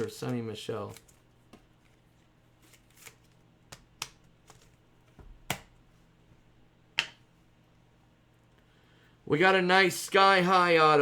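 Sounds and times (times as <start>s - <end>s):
trading cards clicking and snapping: 2.7s - 4.8s.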